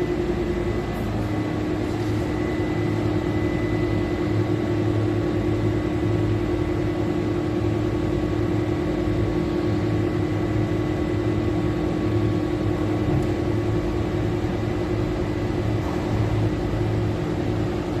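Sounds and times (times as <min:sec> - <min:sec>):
refrigerator machine hum: 0:00.0 - 0:18.0
fan noise rushing: 0:12.0 - 0:18.0.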